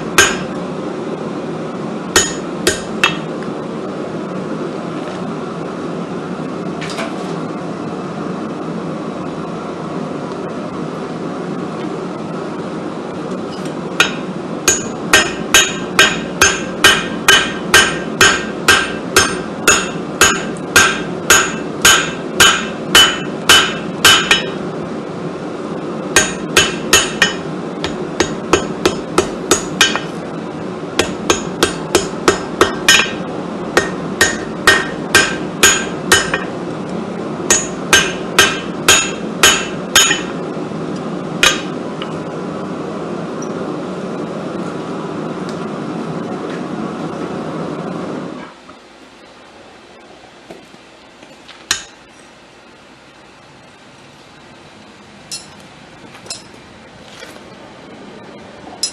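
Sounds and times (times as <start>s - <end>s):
hammer striking steel on anvil: 0.2s - 0.6s, 2.2s - 3.3s, 14.0s - 24.6s, 26.2s - 30.2s, 31.0s - 33.2s, 33.8s - 36.6s, 37.5s - 40.4s, 41.4s - 41.8s, 51.7s - 52.0s, 55.3s - 55.6s, 56.3s - 56.5s.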